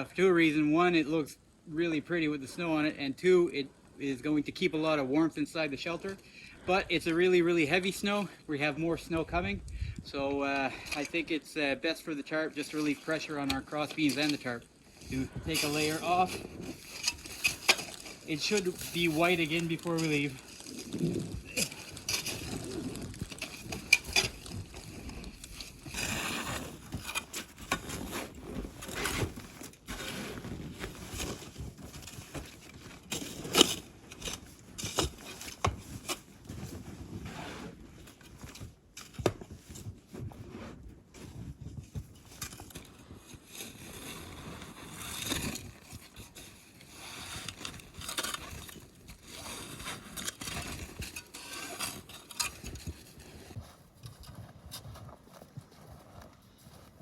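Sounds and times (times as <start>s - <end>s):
snow being scraped off roof: 12.1s - 38.0s, 42.9s - 53.6s.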